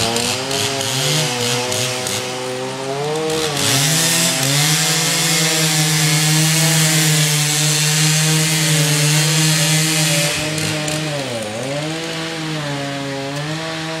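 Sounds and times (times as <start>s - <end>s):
chainsaw cutting wood: 0.0s - 14.0s.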